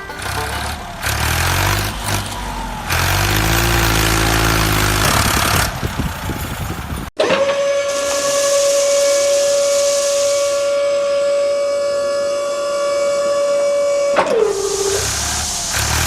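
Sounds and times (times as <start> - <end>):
steady whistle-like tone: 7.5 - 16.0
hiss: 7.7 - 11.6, 13.2 - 16.0.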